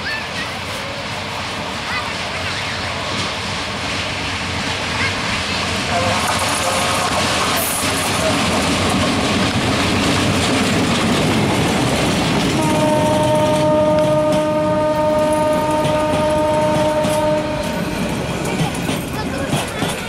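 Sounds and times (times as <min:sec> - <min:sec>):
train coaches clattering over rails: 0:00.0 - 0:20.0
train horn long blast: 0:05.9 - 0:07.8, 0:12.5 - 0:17.9.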